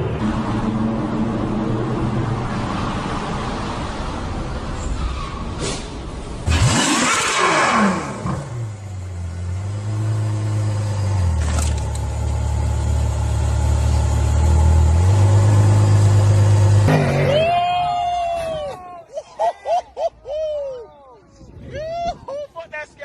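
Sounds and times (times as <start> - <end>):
car engine droning: 0.0 - 5.1, 6.2 - 17.7.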